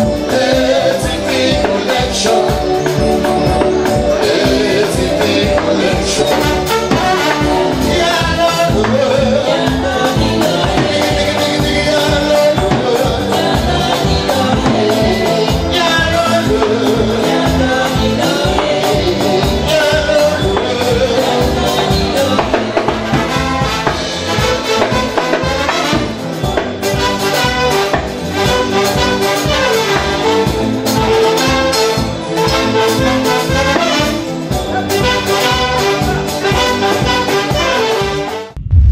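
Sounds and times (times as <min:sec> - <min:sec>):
brass: 0:00.0 - 0:38.6
live band music: 0:00.0 - 0:38.9
person singing: 0:00.1 - 0:23.5.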